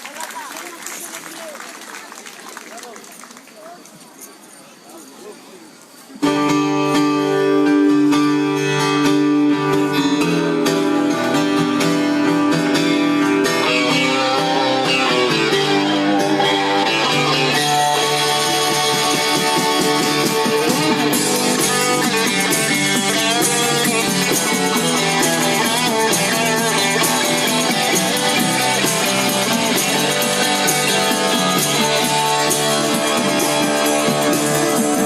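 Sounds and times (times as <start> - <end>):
strummed guitars: 6.2 - 35.0
bass guitar: 6.3 - 35.0
drums and cymbals: 16.7 - 35.0.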